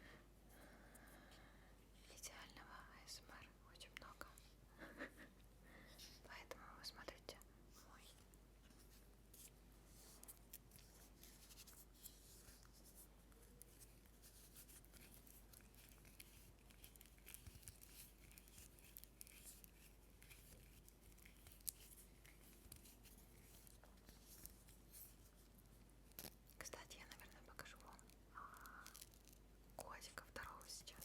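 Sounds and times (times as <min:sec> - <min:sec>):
objects scratching and clicking: 0:08.8 - 0:25.2.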